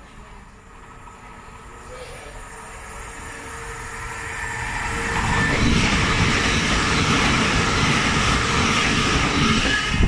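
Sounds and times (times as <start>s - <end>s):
electric train passing: 0.0s - 10.0s.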